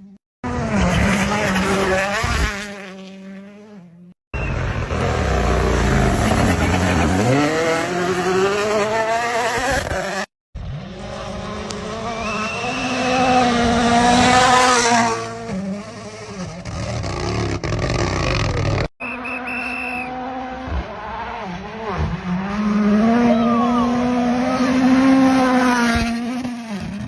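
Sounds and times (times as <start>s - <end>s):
rally car engines high revs: 0.4s - 27.0s.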